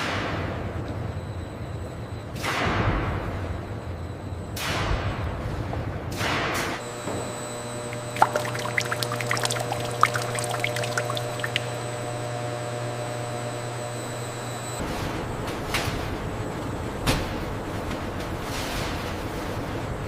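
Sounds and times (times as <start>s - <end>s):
machine hum: 6.8s - 15.4s
something pouring: 8.0s - 11.7s.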